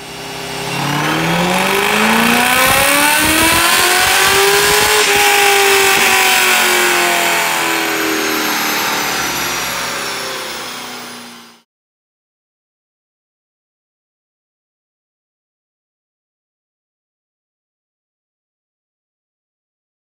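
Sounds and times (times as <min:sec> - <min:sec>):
car engine revving on dyno: 0:00.0 - 0:11.6
dyno rollers coasting: 0:00.0 - 0:11.6.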